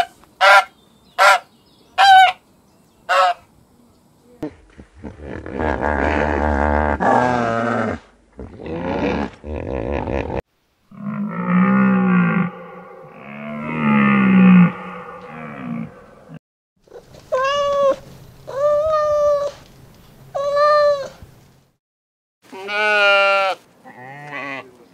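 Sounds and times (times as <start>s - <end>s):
loud animal calls: 10.9s - 16.4s.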